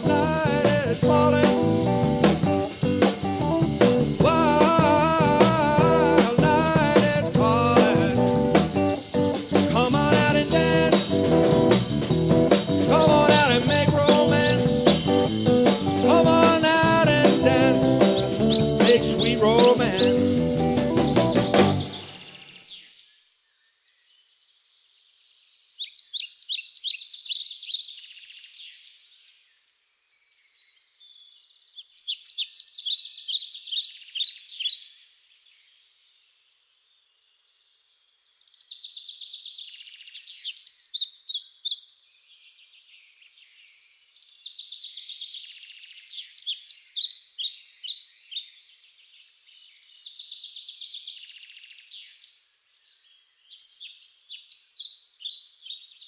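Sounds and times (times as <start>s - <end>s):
songbird chirping trills: 0.0s - 56.0s.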